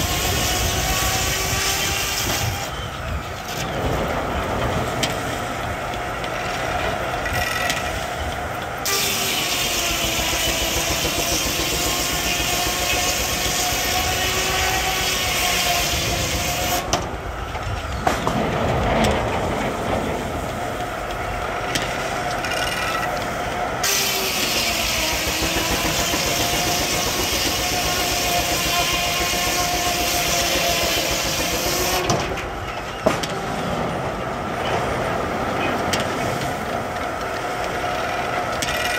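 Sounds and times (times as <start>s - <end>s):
saw blade whining through log: 0.0s - 3.8s, 8.8s - 17.0s, 23.8s - 32.5s
steam engine running: 0.0s - 17.7s, 23.0s - 32.6s.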